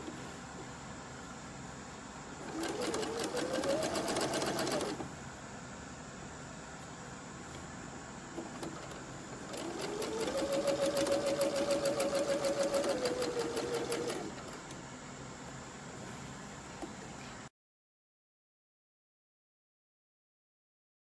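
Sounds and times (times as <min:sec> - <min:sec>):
sewing machine motor whine: 0:02.4 - 0:05.1, 0:08.4 - 0:14.8.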